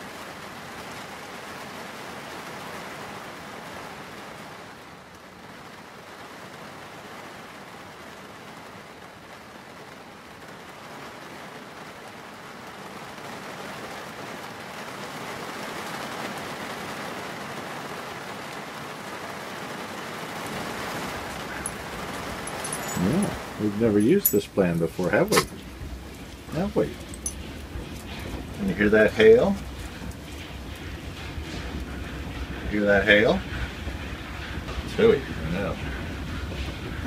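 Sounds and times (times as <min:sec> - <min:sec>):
heavy rain: 0:00.0 - 0:37.0
strong wind: 0:19.8 - 0:37.0.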